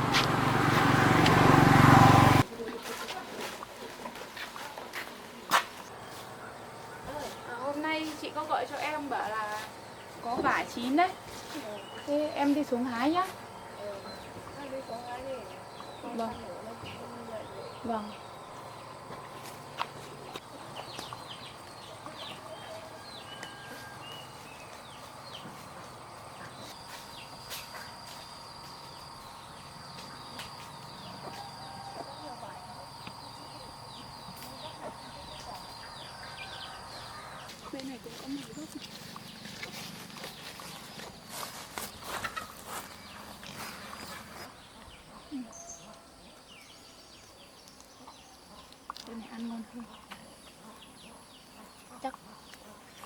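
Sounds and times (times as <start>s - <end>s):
small birds chirping: 5.4s - 53.0s
bird clucking: 42.0s - 44.0s.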